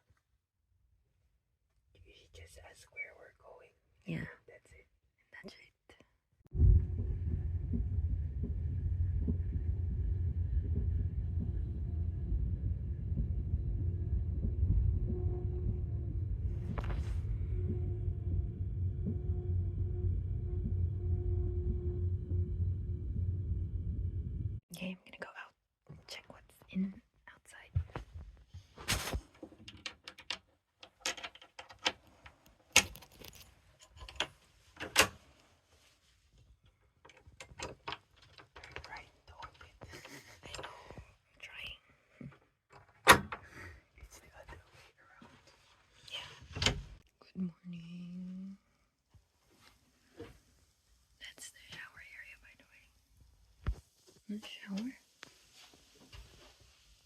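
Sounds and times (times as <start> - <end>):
train rumble: 6.5 - 24.6
faint steady hum: 6.5 - 25.5
door latch clicking and rattling: 29.6 - 32.0.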